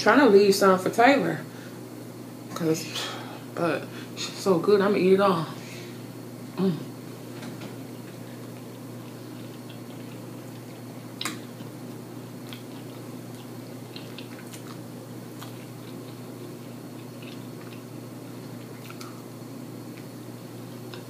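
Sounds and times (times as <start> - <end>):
steady low hum: 0.0 - 21.0
open-mouthed chewing smacks: 8.0 - 19.3.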